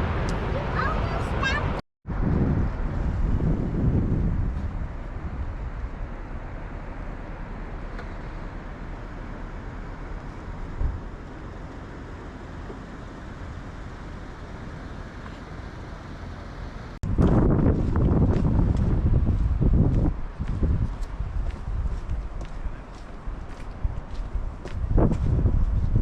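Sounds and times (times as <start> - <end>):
river and waterfall roaring: 0.0 - 1.8.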